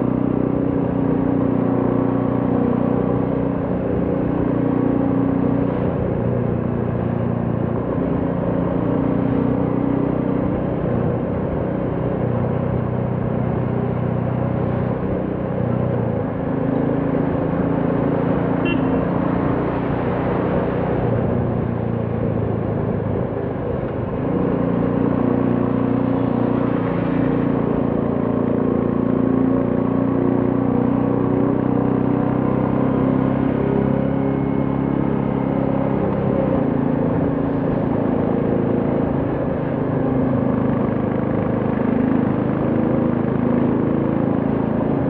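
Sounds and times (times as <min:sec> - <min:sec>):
road and wind noise: 0:00.0 - 0:45.0
motorcycle engine running: 0:16.0 - 0:19.2.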